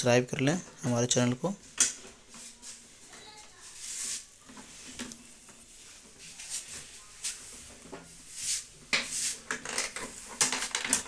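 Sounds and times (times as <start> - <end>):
objects handled on a workbench: 3.7 - 11.0.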